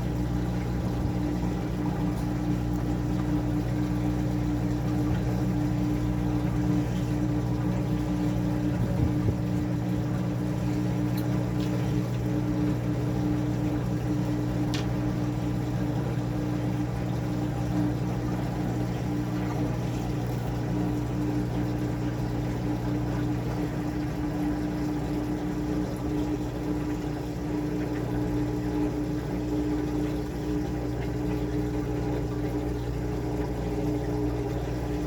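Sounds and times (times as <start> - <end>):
washing machine motor hum: 0.0 - 35.0.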